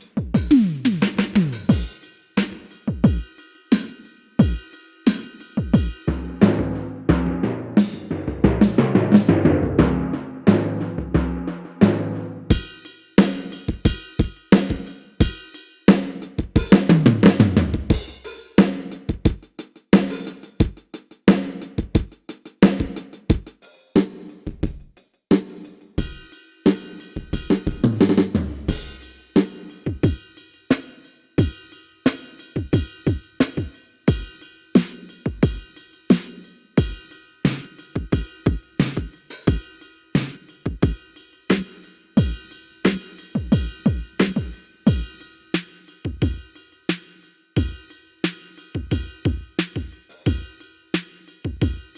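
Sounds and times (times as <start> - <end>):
sampled drum hits: 5.7 - 14.9.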